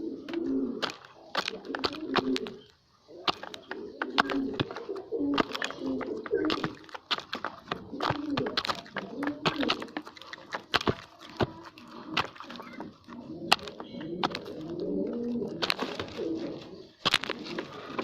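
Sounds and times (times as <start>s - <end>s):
pigeons cooing: 0.0s - 18.0s
sharp clicks and taps: 0.3s - 2.6s.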